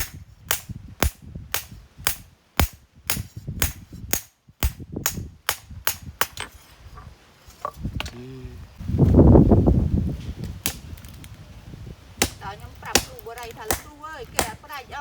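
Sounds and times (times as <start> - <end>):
hammer striking hot steel: 0.0 - 6.6.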